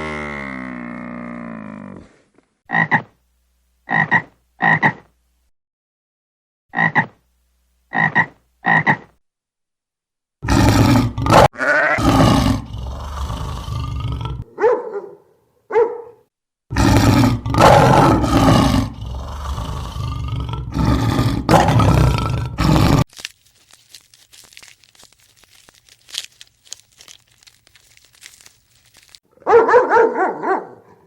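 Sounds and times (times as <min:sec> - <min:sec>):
large animal roaring: 0:00.0 - 0:02.2, 0:10.4 - 0:14.5, 0:16.7 - 0:23.1.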